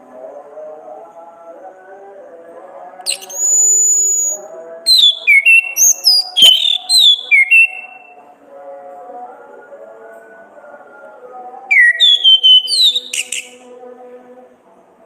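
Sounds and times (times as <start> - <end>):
soft backing music: 0.0 - 15.0
thrush whistling song: 3.1 - 8.2, 11.7 - 13.6.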